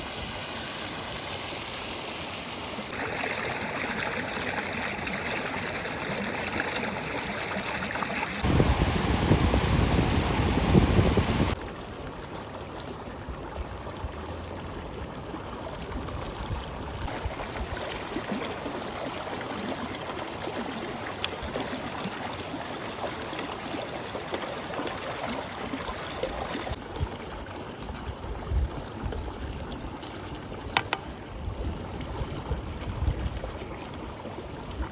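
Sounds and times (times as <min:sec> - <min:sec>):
river water rushing: 0:08.3 - 0:11.6.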